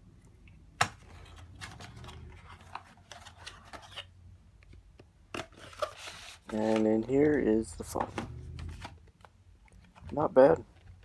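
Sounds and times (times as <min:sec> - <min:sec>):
box rustling and light clicks: 0:00.8 - 0:11.0.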